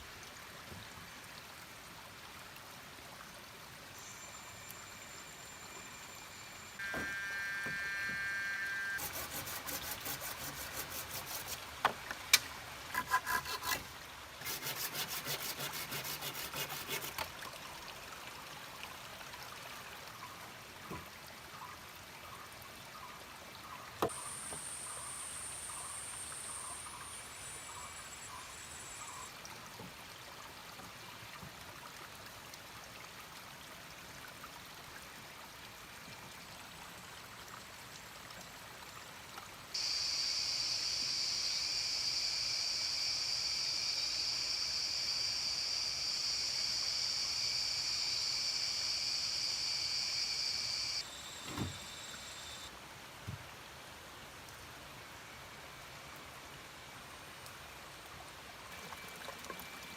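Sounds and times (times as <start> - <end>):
faint insect and frog calls: 3.8 - 11.6, 21.5 - 29.4, 39.7 - 52.7
loud high insect buzz: 6.8 - 11.6, 39.8 - 52.7
water trickling: 58.0 - 59.9.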